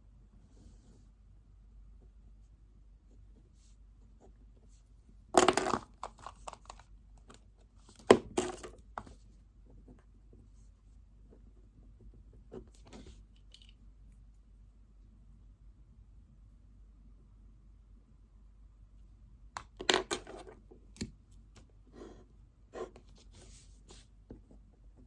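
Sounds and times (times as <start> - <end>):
rustling on a desk: 5.6 - 9.4, 12.6 - 13.7, 22.8 - 24.4.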